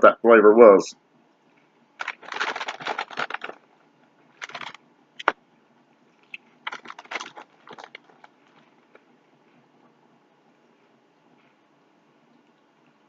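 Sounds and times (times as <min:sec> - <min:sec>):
crackers crunching while chewed: 0:02.0 - 0:03.6, 0:04.4 - 0:05.4, 0:06.2 - 0:09.0.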